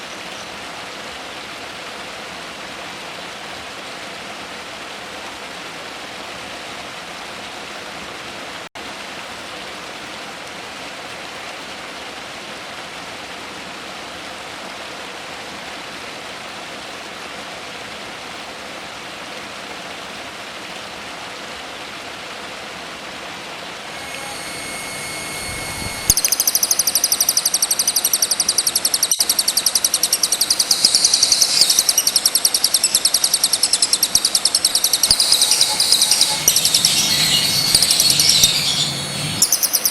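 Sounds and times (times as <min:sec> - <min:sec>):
shrill fast-chattering songbird: 0:24.0 - 0:39.9.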